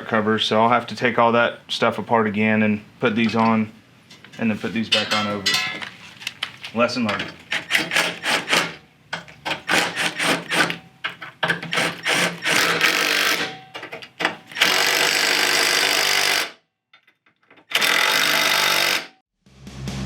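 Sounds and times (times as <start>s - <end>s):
power tool bursts: 7.5s - 8.8s, 9.6s - 10.8s, 11.6s - 13.5s, 14.5s - 16.6s, 17.7s - 19.2s.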